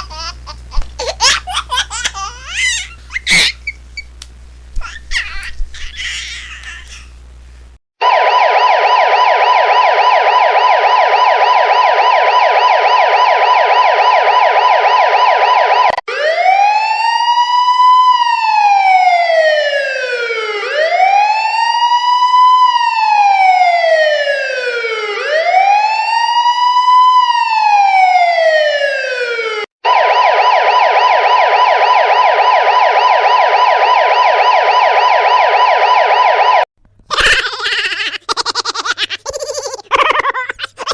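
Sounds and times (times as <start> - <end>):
siren warbling yelp: 2.0 - 3.8, 4.8 - 7.0, 8.0 - 36.6
siren wails: 8.0 - 36.7.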